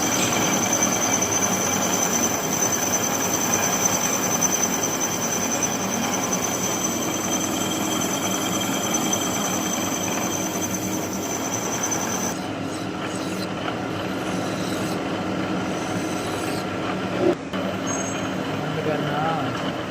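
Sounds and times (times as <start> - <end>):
high thin whine: 0.0 - 12.8
lathe machining steel: 0.0 - 19.9.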